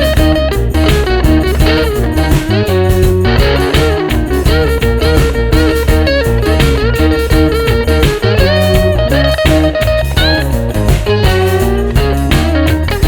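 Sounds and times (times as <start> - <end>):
bluesy electric guitar with band: 0.0 - 13.0.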